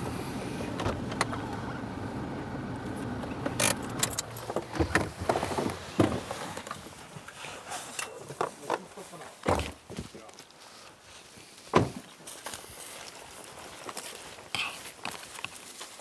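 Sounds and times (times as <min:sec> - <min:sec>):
vehicle engine idling: 0:00.0 - 0:05.2
sharp clicks and rattles: 0:02.5 - 0:05.1.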